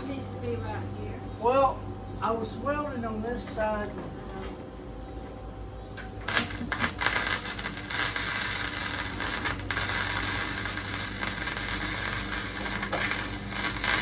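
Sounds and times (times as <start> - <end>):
electric welding arc crackling: 6.0 - 14.0.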